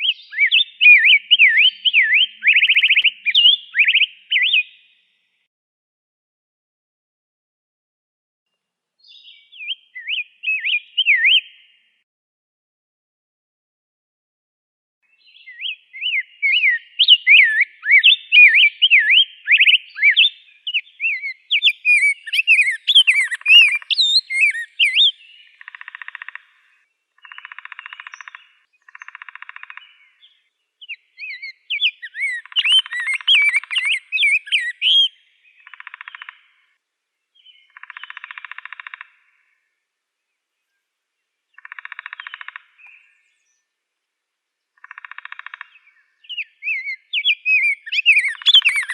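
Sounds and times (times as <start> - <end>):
bird warbled whistled song: 0.0 - 5.0, 9.0 - 11.6, 15.2 - 26.5, 27.2 - 36.4, 41.6 - 43.6, 44.8 - 48.9.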